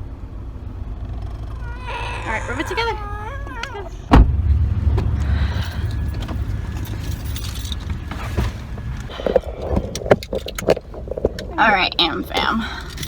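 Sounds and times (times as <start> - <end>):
low rumble: 1.5 - 12.1
car door shutting: 3.6 - 10.8
small clicks and rattles: 6.1 - 13.0.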